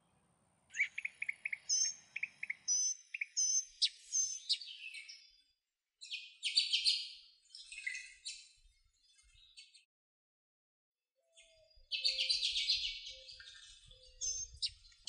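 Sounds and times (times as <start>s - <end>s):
songbird chirping and whistling: 0.7s - 5.2s, 11.3s - 15.0s.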